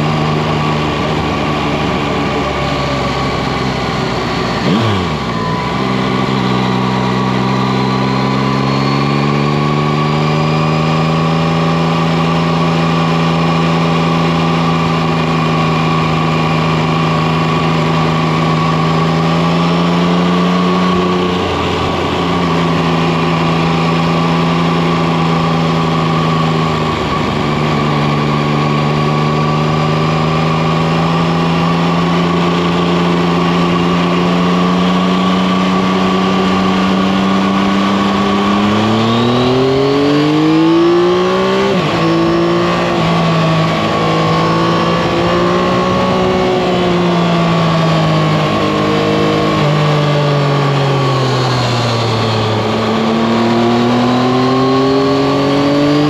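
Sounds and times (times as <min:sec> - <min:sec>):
motorcycle engine cruising: 0:00.0 - 0:56.0
wind and road rush: 0:00.0 - 0:56.0.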